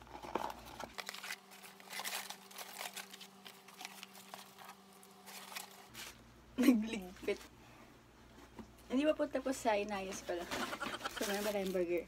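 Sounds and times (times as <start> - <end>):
paper wrappers crinkling: 0.0 - 6.2, 10.0 - 12.0
faint steady hum: 0.0 - 12.0.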